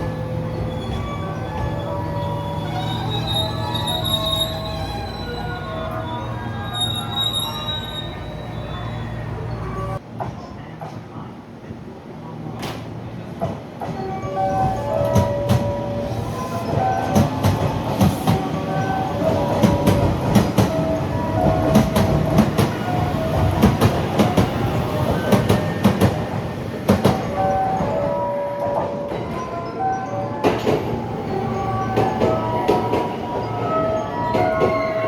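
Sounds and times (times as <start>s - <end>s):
train rumble: 0.0s - 35.0s
wheel squeals: 0.4s - 10.0s
train wheels clattering: 14.6s - 29.5s, 31.6s - 35.0s.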